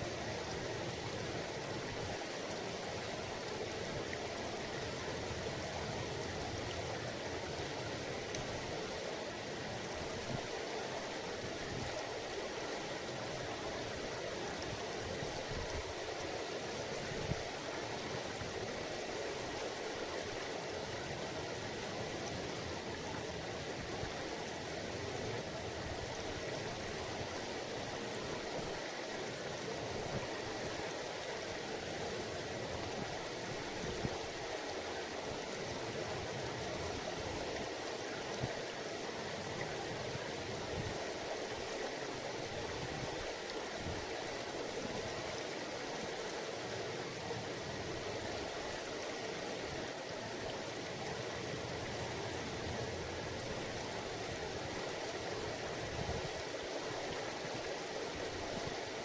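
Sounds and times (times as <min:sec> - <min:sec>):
river rushing over rocks: 0:00.0 - 0:59.0.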